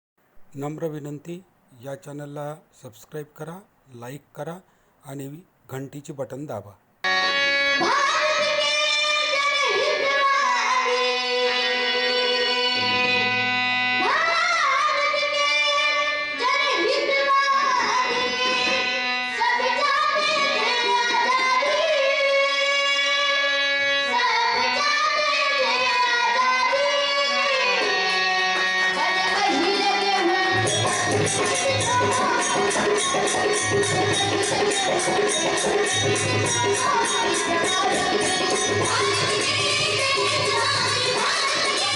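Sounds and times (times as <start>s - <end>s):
harmonium reed notes: 7.1s - 8.3s
girls singing devotional song: 7.7s - 13.2s, 13.9s - 41.9s.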